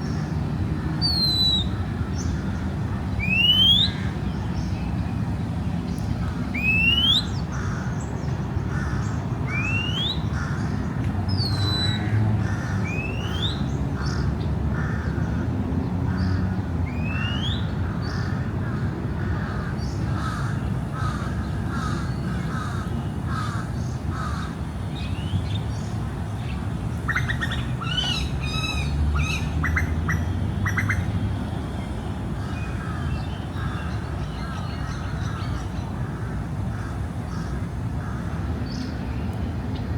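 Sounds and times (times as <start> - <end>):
distant city traffic rumble: 0.0 - 39.9
birds whistling and calling: 1.0 - 2.3, 3.2 - 4.0, 6.6 - 7.4, 9.5 - 10.3, 11.3 - 12.1, 16.9 - 17.7
crows cawing: 14.8 - 15.2, 18.1 - 24.6.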